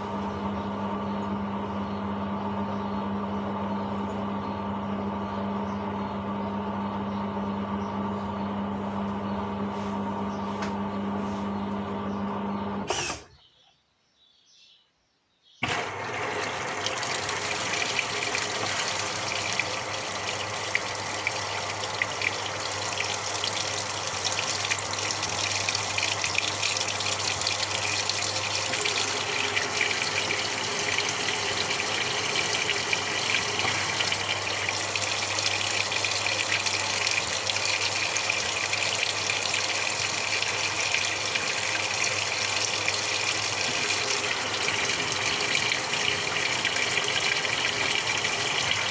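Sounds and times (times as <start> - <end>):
water gushing into tub: 15.6 - 48.9
low steady hum: 15.7 - 48.9.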